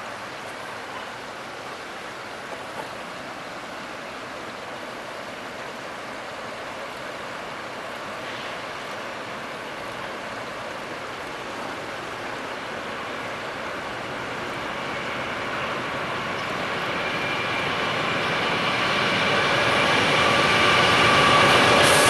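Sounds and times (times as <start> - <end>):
distant train approaching: 0.0 - 22.0.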